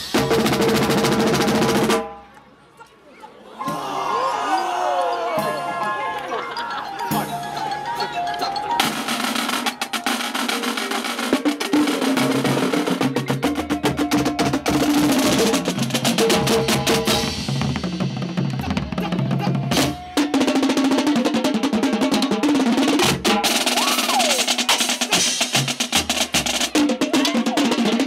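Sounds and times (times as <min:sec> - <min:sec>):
snare drum strokes and rolls: 0:00.0 - 0:02.1, 0:08.7 - 0:28.0.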